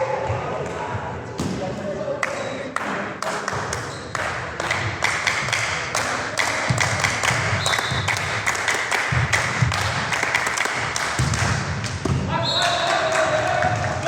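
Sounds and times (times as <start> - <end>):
volleyball being struck: 11.0 - 12.3.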